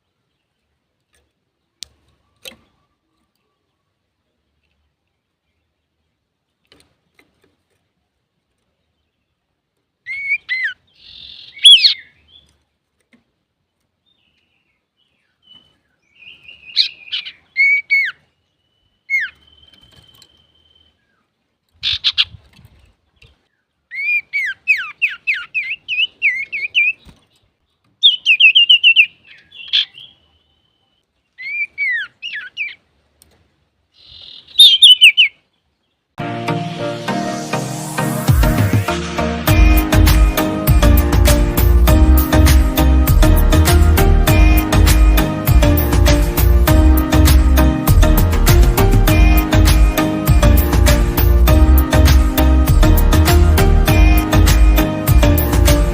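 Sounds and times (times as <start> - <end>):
bird singing whistled phrases: 11.4 - 12.2, 34.1 - 35.4.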